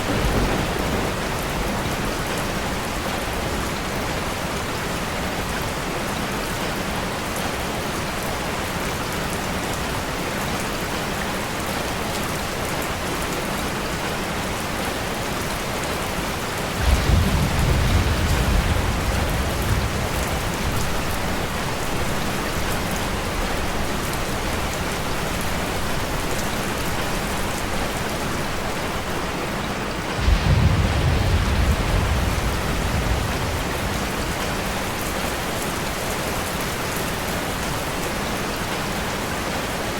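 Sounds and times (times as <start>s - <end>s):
thunder rolling: 0.0s - 3.5s, 16.7s - 29.2s, 30.1s - 36.1s
steady rain falling: 0.0s - 39.9s.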